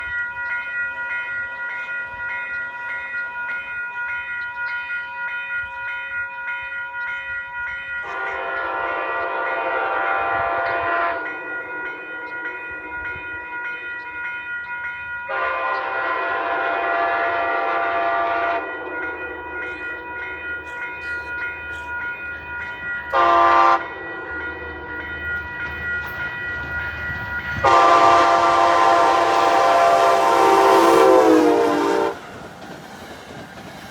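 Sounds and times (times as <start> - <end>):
passing train tone: 0.0 - 33.9
train horn blasts: 8.0 - 13.8, 15.3 - 21.1, 23.1 - 25.1, 27.6 - 32.3.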